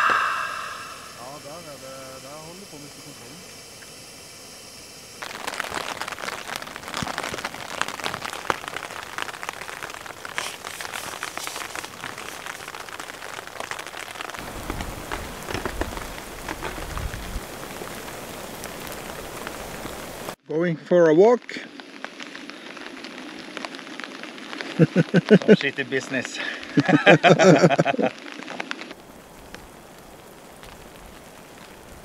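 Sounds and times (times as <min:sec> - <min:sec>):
low rumble: 0:00.0 - 0:01.8
steady hiss: 0:00.0 - 0:20.4, 0:21.0 - 0:32.0
rain pattering on a tent: 0:05.2 - 0:20.4, 0:21.2 - 0:32.0.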